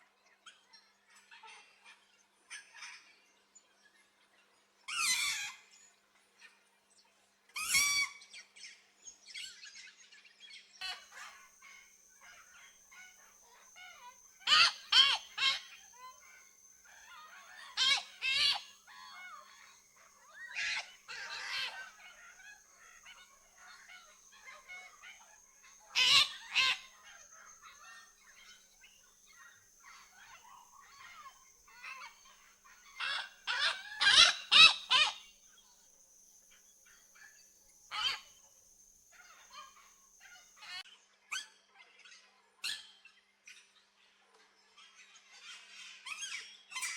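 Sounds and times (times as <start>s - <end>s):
small birds twittering: 0.0s - 46.9s
macaw squawking: 10.9s - 28.7s, 29.4s - 35.3s, 37.9s - 38.3s.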